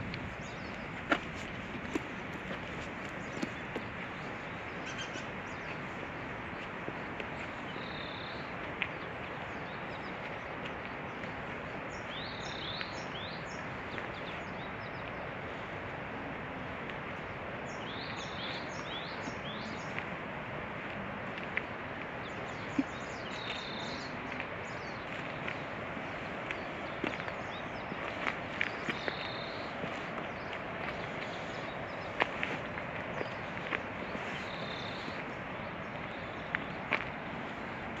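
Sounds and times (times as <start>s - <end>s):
steady outdoor hiss: 0.0s - 38.0s
small bird chirping: 4.8s - 5.7s.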